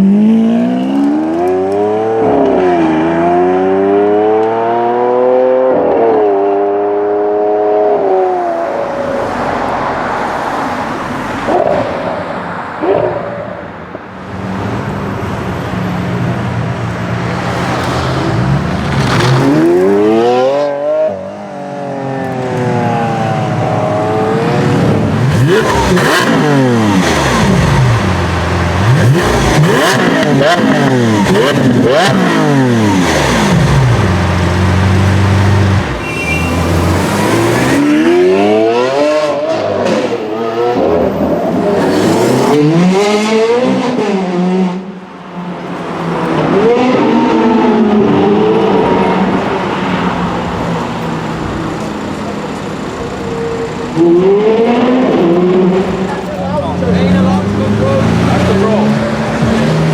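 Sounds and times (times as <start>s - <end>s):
car engine revving: 0.0s - 14.9s, 16.6s - 59.9s.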